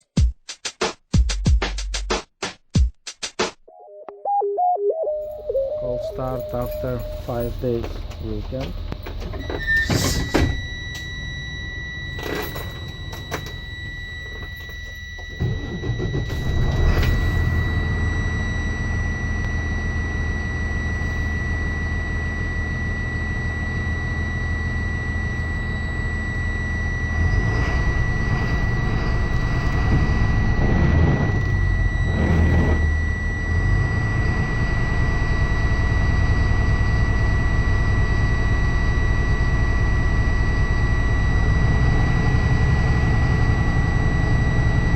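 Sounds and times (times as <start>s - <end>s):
high warning tone: 3.7s - 44.9s
diesel engine starting and idling: 15.1s - 22.5s, 26.3s - 44.9s.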